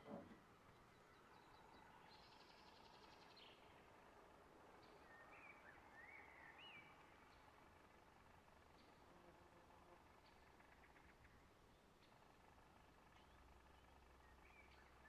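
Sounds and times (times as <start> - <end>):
faint birds singing: 0.0 - 15.0.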